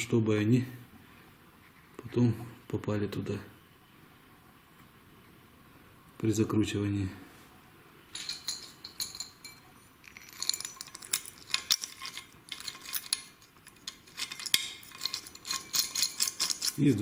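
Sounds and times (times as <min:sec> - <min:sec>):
metallic clinks of tools and bolts: 0:08.2 - 0:16.9.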